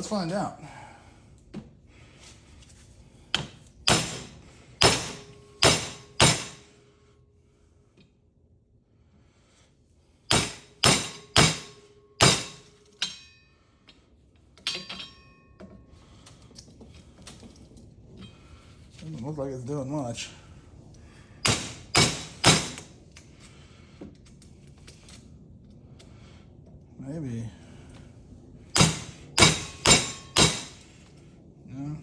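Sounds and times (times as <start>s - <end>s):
hammer striking metal: 3.4s - 6.8s, 10.3s - 13.5s, 14.6s - 15.5s, 21.4s - 22.9s, 28.8s - 30.9s
light metal clinks: 14.6s - 15.6s.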